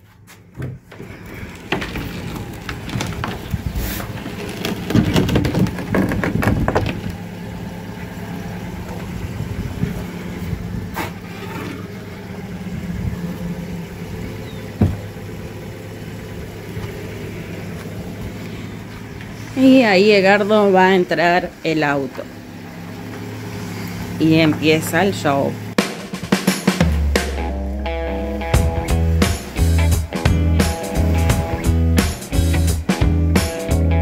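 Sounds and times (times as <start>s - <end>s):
car engine idling: 0.0s - 34.0s
wooden gate knocking and scraping: 0.2s - 7.4s, 14.6s - 15.2s.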